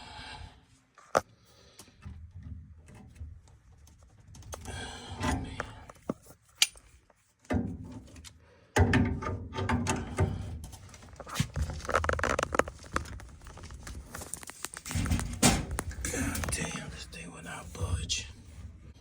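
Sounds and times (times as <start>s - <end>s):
rustling clatter of tools: 10.0s - 17.0s.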